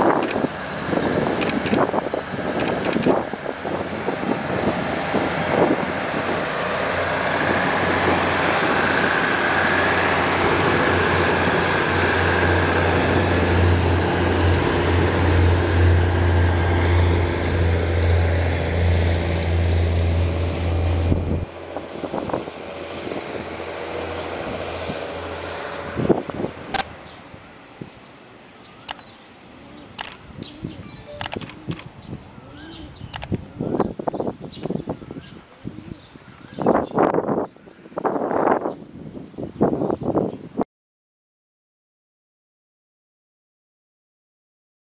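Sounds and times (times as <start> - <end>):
diesel train passing: 0.0 - 32.0.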